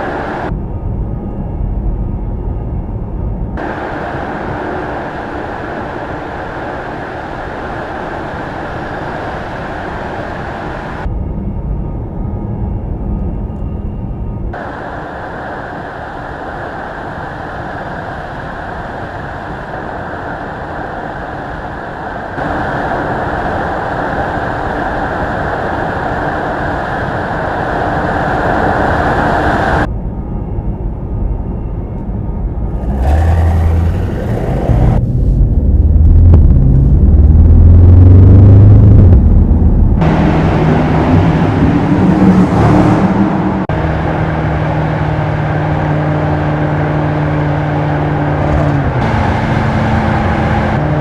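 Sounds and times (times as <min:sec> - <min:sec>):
car engine revving: 0:32.7 - 0:51.0.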